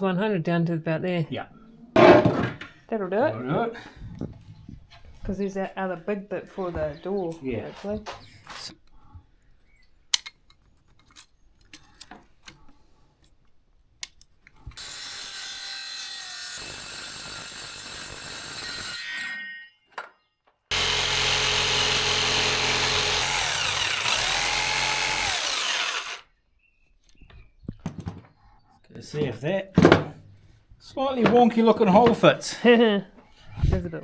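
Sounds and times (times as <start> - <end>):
power tool cutting wood: 14.8 - 19.3, 20.7 - 26.3.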